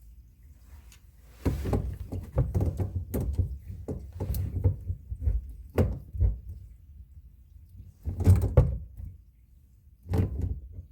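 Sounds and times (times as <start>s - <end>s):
knocks and thuds of handling: 1.3s - 6.7s, 8.0s - 9.2s.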